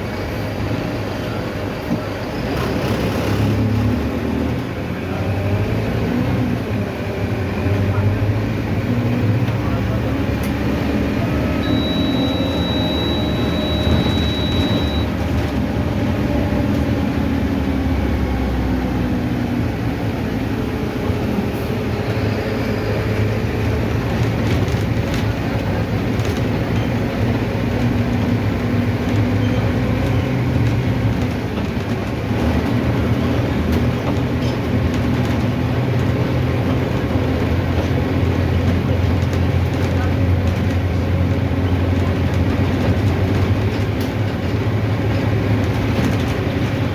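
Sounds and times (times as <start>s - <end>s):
bus diesel engine hum: 0.0s - 46.9s
road noise: 0.0s - 46.9s
thin high beep: 11.6s - 15.1s.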